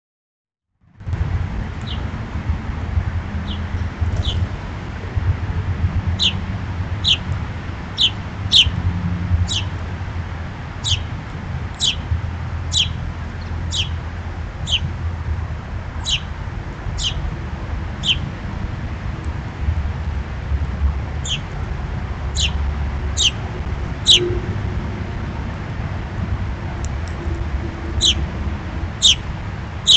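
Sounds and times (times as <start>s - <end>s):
steady low rumble: 1.0s - 29.9s
bird chirping: 1.8s - 2.0s, 3.4s - 4.4s, 6.2s - 6.4s, 7.0s - 7.2s, 8.0s - 8.8s, 9.5s - 9.7s, 10.8s - 11.1s, 11.8s - 12.1s, 12.7s - 13.0s, 13.7s - 14.0s, 14.6s - 14.9s, 16.0s - 16.3s, 17.0s - 17.2s, 18.0s - 18.3s, 21.2s - 21.5s, 22.4s - 22.6s, 23.2s - 23.4s, 24.0s - 24.4s, 28.0s - 28.2s, 29.0s - 29.2s.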